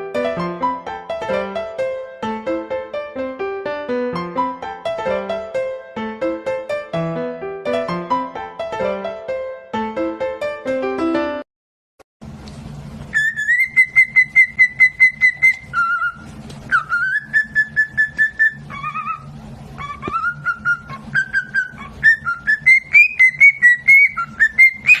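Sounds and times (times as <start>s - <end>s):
steady low hum: 12.2s - 24.9s
parrot whistling short notes: 13.1s - 25.0s.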